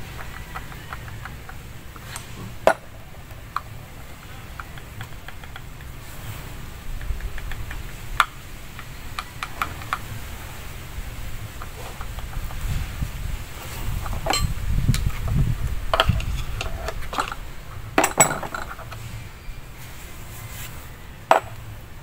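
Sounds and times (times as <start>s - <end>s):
metal parts clinking: 14.0s - 15.2s, 15.9s - 19.1s.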